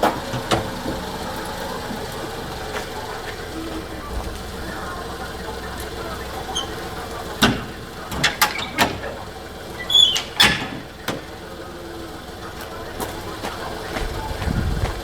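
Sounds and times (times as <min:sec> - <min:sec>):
sharp knocks and clanks: 0:00.0 - 0:01.1, 0:06.6 - 0:09.2, 0:09.8 - 0:11.4
engine idling: 0:00.0 - 0:15.0
high squeak: 0:09.8 - 0:10.7.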